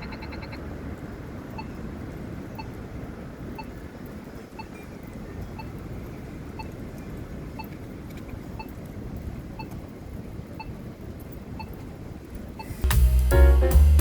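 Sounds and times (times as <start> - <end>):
wind buffeting microphone: 0.0 - 12.8
faint short beep: 12.6 - 12.8.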